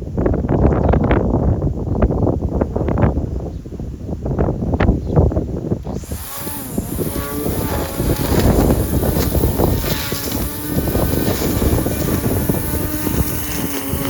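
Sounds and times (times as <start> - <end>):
lawn mower engine running: 5.8 - 14.0.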